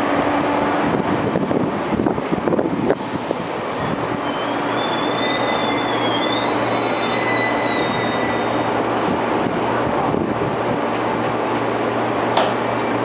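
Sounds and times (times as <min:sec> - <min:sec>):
train rumbling to a stop: 0:00.0 - 0:13.0
high-pitched wheel squeal: 0:04.1 - 0:08.8.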